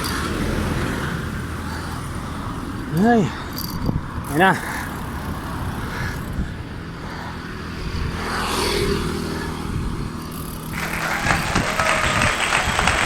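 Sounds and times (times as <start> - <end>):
motor vehicle passing: 0.0 - 13.0
road traffic noise: 0.0 - 13.0
dense applause-like hiss: 10.8 - 13.0.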